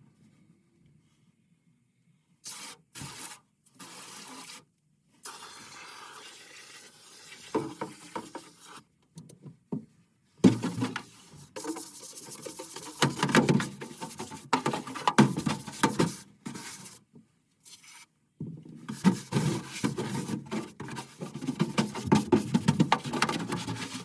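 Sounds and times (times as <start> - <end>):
scraping and rubbing metal parts: 18.9 - 24.0.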